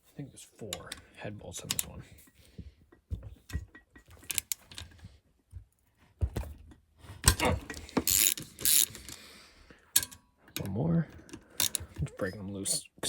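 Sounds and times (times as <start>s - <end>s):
socket ratchet clicking: 7.8s - 9.2s, 11.6s - 12.0s.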